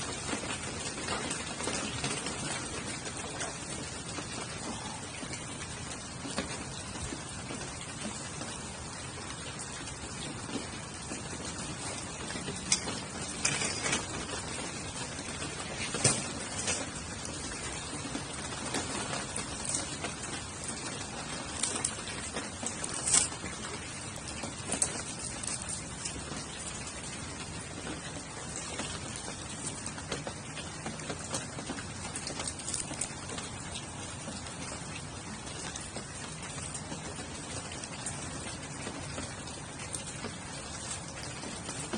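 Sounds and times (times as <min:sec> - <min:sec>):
campfire popping and crackling: 0:00.0 - 0:41.9
rain hiss: 0:00.0 - 0:41.9.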